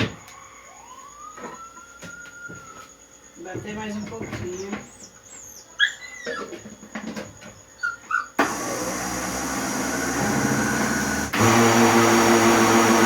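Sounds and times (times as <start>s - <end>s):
dog whimpering: 4.0s - 6.8s, 7.8s - 8.4s
dog yipping: 4.6s - 6.7s, 7.7s - 8.4s
kitchen blender running: 8.4s - 13.0s.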